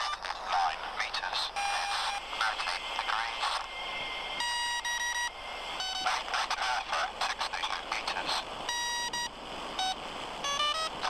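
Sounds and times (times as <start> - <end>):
muffled voice over radio: 0.0 - 3.7, 6.0 - 8.5
radio beeps: 0.0 - 3.7, 4.4 - 11.0
radio hiss: 0.0 - 11.0.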